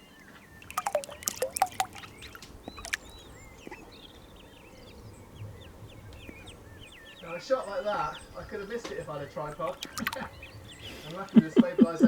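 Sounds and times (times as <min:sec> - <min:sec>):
ducklings peeping: 0:00.0 - 0:12.0
run of sharp clicks: 0:09.6 - 0:10.3.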